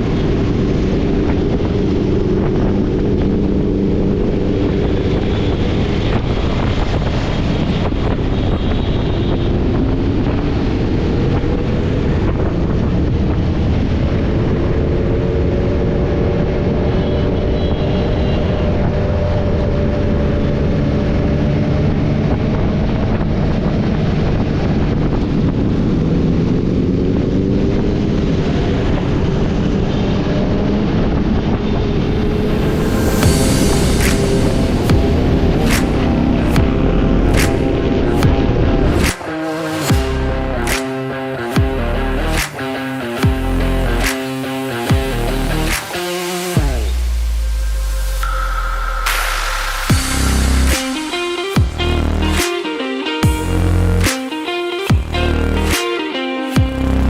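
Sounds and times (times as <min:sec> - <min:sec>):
wind noise on microphone: 0:00.0 - 0:52.5
motorcycle engine revving: 0:12.8 - 0:48.4.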